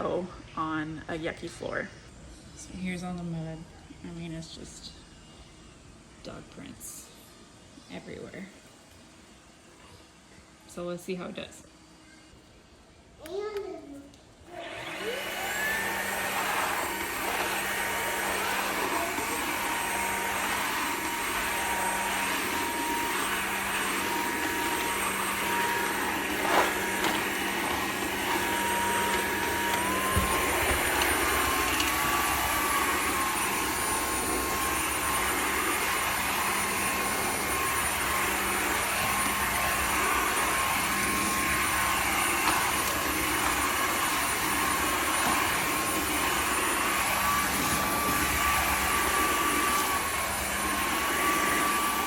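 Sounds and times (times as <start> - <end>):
vacuum mop motor whining: 14.5 - 52.0.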